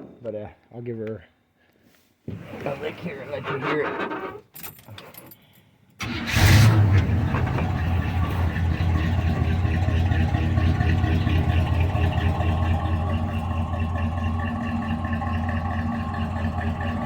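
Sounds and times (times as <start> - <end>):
engine starting and idling: 6.0 - 17.0.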